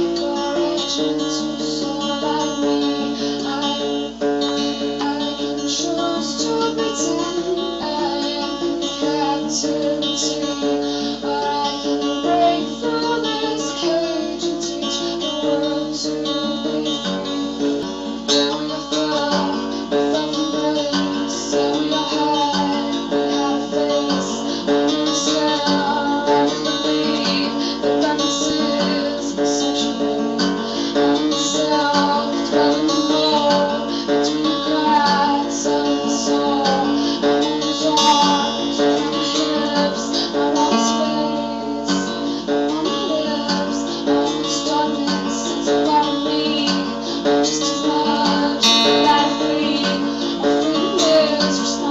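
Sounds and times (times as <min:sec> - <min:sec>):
acoustic guitar strumming: 0:00.0 - 0:51.9.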